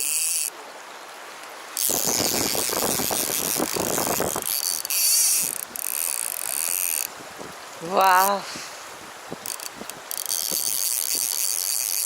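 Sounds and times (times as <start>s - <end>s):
fishing reel drag clicking: 0.0s - 0.6s, 1.8s - 7.2s, 9.4s - 12.0s.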